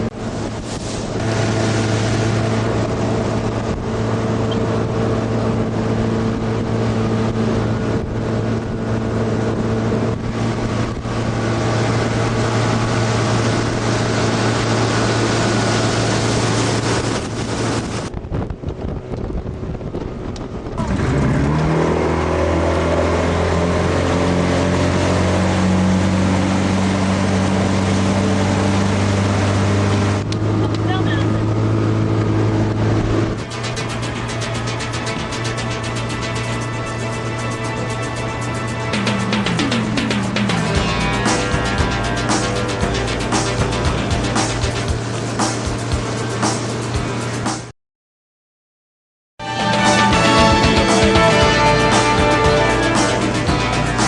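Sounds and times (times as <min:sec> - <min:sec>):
wind and water hiss: 0:00.0 - 0:20.7
motorboat engine running: 0:00.0 - 0:47.7, 0:49.4 - 0:54.0.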